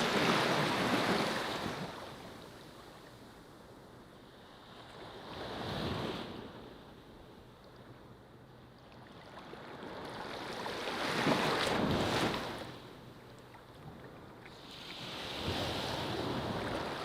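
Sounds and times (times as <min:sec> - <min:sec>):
ocean waves breaking on beach: 0:00.0 - 0:03.4, 0:09.0 - 0:13.2, 0:13.8 - 0:17.0.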